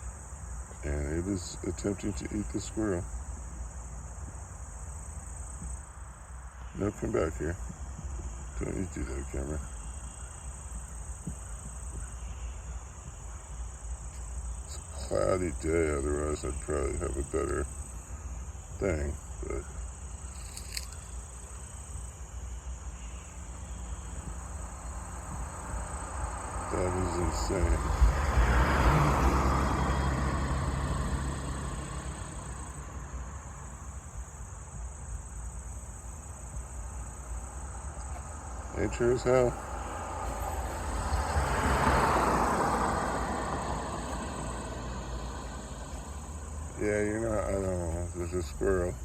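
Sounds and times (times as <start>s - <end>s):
car passing: 0.0s - 21.8s, 22.6s - 35.0s, 36.4s - 49.0s
high-pitched insect chorus: 0.0s - 49.0s.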